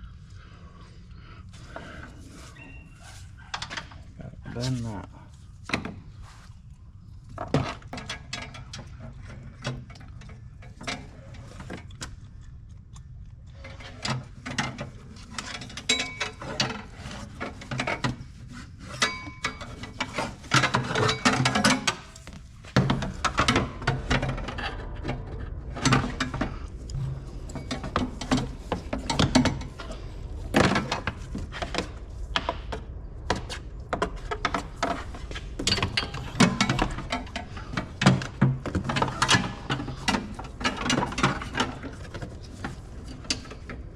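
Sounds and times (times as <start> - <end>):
low hum: 0.0 - 43.9
metal tubing clicking and clanking: 13.6 - 18.3.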